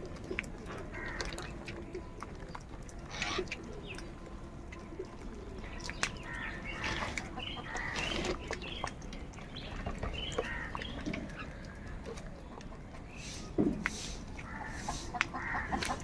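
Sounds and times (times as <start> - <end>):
crows cawing: 0.9 - 1.4, 7.7 - 8.1, 10.4 - 10.9, 14.4 - 16.0.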